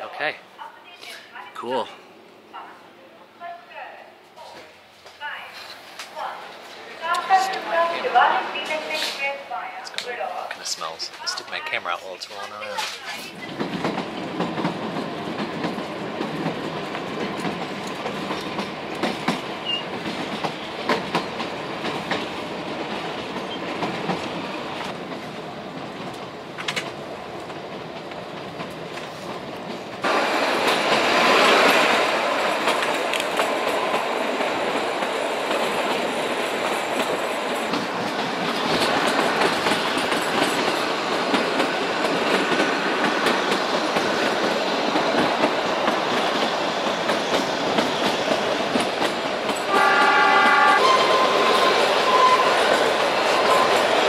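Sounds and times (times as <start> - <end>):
train wheels clicking over rail joints: 12.8 - 54.0.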